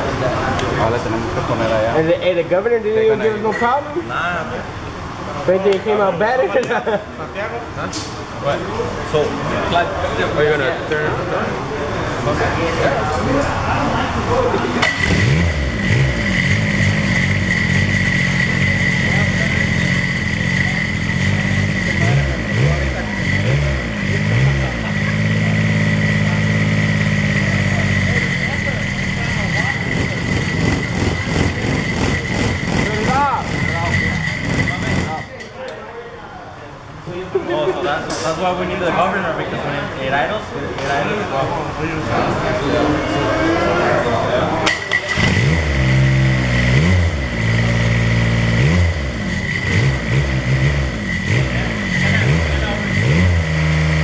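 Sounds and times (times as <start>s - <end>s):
diesel engine revving and idling: 14.2s - 35.4s, 44.6s - 54.0s
high-pitched whine: 15.8s - 35.4s.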